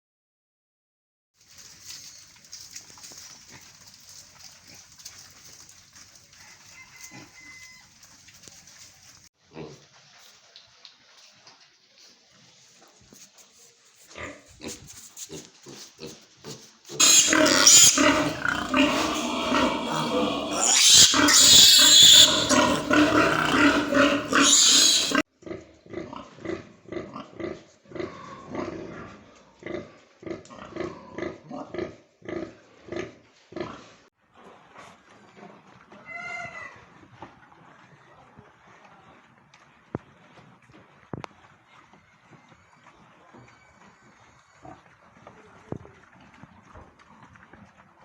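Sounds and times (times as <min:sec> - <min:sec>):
pigs grunting: 0:14.2 - 0:33.9
pigs squealing: 0:16.9 - 0:25.2.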